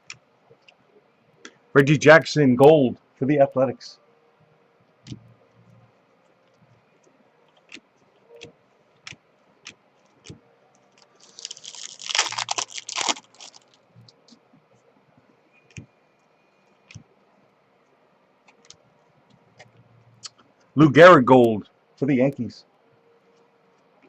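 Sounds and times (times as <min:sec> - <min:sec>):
foil wrapper crinkling: 0:11.0 - 0:13.9.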